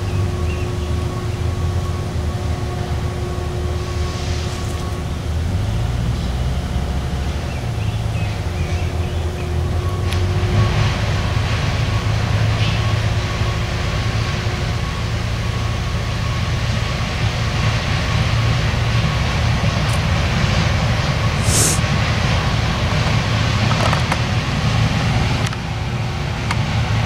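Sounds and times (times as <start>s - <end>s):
train rumbling past: 0.0s - 27.0s
short high hiss: 21.4s - 21.9s.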